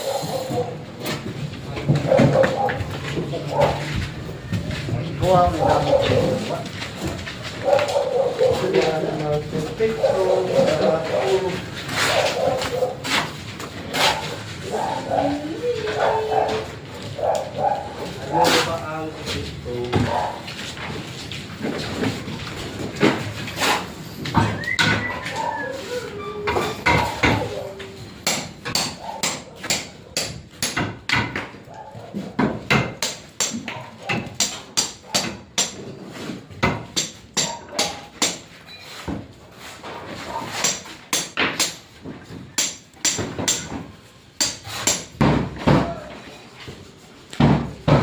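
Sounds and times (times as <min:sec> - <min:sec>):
voices: 0:01.6 - 0:13.2, 0:13.9 - 0:20.8, 0:24.3 - 0:28.2.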